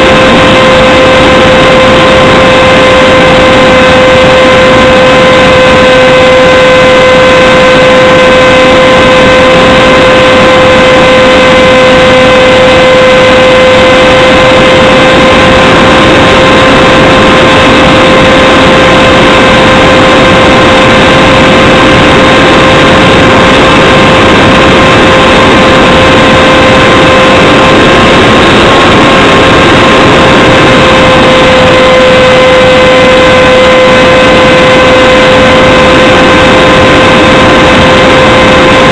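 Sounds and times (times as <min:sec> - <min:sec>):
model plane motor whining: 0:00.0 - 0:38.9
wind rush: 0:00.0 - 0:38.9.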